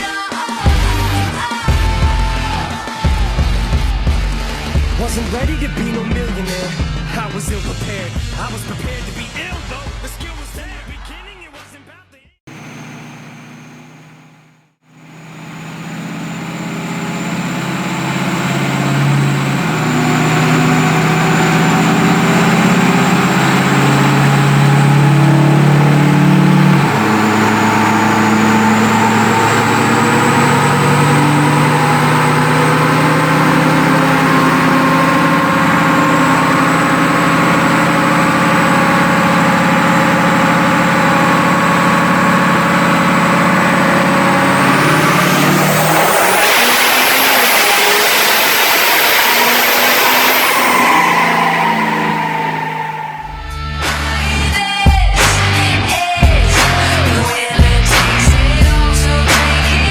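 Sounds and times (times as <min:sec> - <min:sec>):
diesel engine running under load: 0:12.5 - 0:54.2
steady high whistle: 0:44.7 - 0:53.6.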